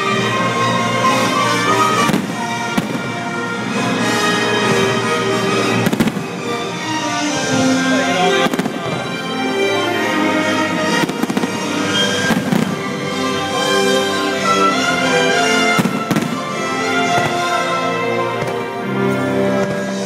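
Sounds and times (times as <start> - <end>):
loud music: 0.0 - 20.0
fireworks bangs: 1.9 - 3.3, 5.7 - 6.6, 8.3 - 9.2, 10.8 - 13.1, 15.6 - 17.7.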